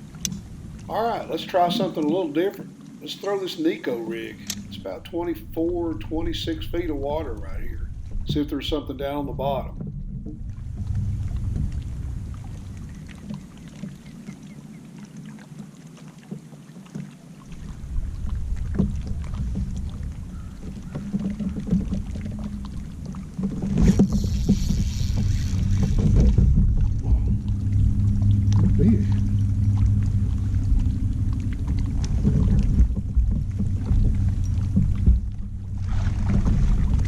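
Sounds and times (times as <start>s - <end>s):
wind rumble on microphone: 0.0s - 2.3s, 4.1s - 15.8s, 17.4s - 37.0s
clicks of rod and reel: 4.1s - 5.2s, 18.7s - 26.6s.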